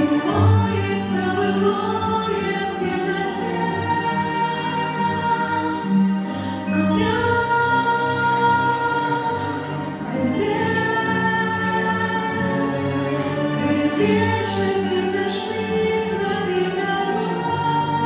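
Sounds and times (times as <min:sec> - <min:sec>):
woman singing slow pop song: 0:06.3 - 0:12.4.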